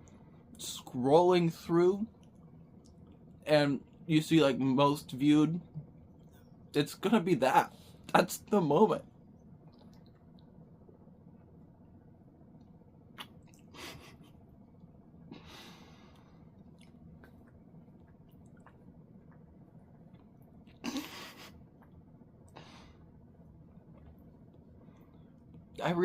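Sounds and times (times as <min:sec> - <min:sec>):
person breathing while eating: 0:15.3 - 0:16.6, 0:22.5 - 0:23.1.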